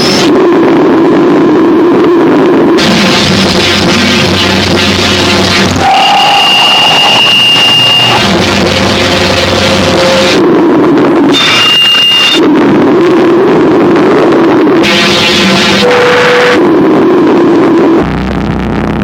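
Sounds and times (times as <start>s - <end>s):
harsh distorted noise music: 0.0s - 1.2s, 2.3s - 19.0s
steady high tone: 4.4s - 10.6s.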